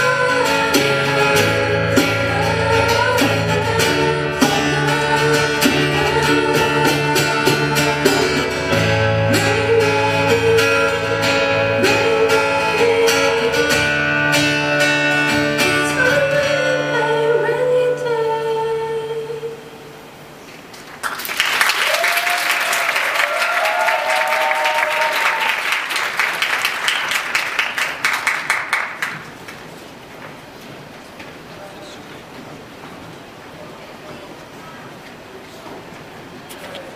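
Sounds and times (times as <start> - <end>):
acoustic guitar band with voice: 0.0 - 36.9
audience applauding and cheering: 20.7 - 29.6.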